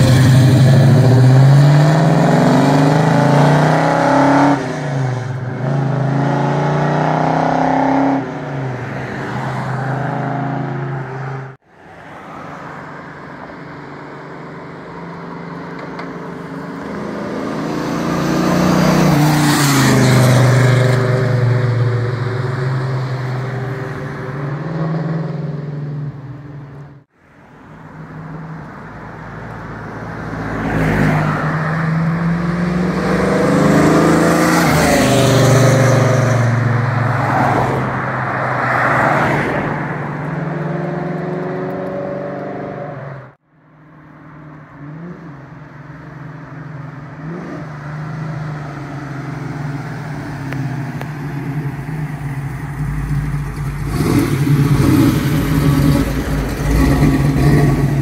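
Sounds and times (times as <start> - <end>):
car driving past: 30.3 - 43.4.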